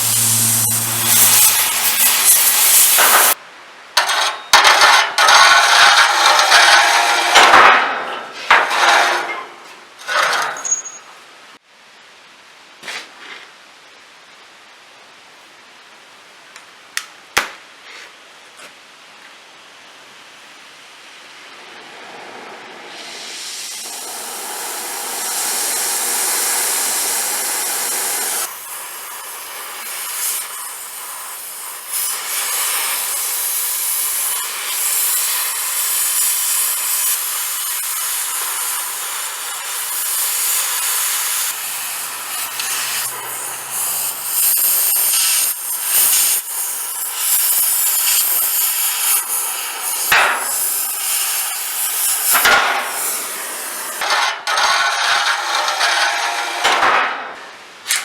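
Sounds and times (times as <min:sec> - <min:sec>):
power tool grinding steel: 0:00.0 - 0:03.4, 0:04.0 - 0:07.6, 0:08.5 - 0:09.4, 0:23.2 - 0:56.8.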